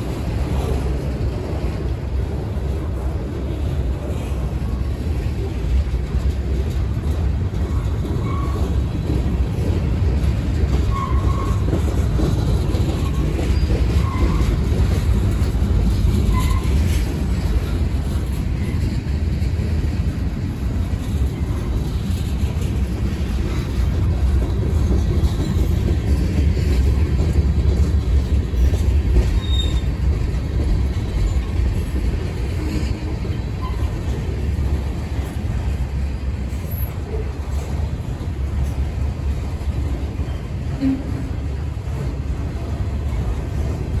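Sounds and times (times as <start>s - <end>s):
train wheels rumbling on rail: 0.0s - 44.0s
faint wheel squeals: 29.3s - 29.9s.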